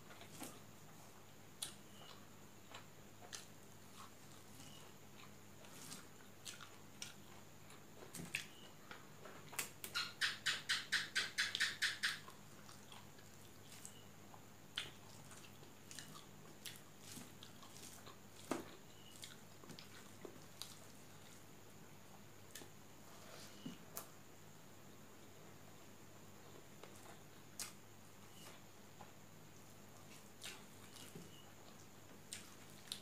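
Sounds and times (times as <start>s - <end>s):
person chewing food: 0.1s - 9.7s, 12.2s - 24.1s, 28.4s - 33.0s.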